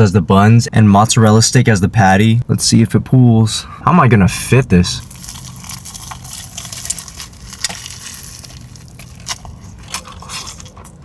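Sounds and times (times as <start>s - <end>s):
crunchy chewing: 5.0s - 11.0s.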